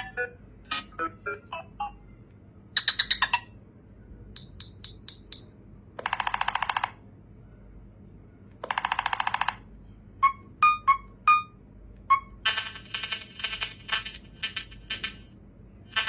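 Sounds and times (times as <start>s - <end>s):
phone ringtone: 0.0s - 2.0s, 4.4s - 6.9s, 10.2s - 15.1s.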